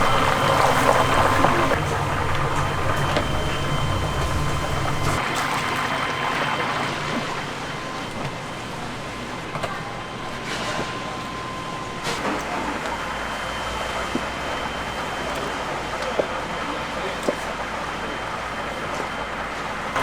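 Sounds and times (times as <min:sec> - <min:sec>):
low hum: 0:00.0 - 0:05.2
oil sizzling in deep fryer: 0:00.0 - 0:08.2.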